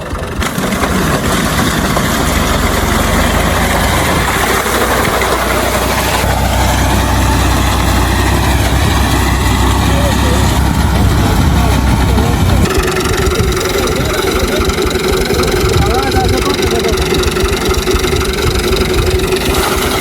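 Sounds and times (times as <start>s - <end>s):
tractor engine rumbling: 0.0s - 20.0s.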